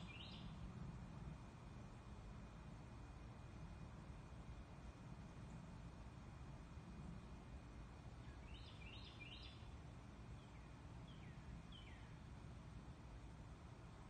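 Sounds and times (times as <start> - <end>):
small bird chirping: 0.0 - 0.6, 8.2 - 9.7, 10.4 - 12.2
low background rumble: 0.0 - 14.0.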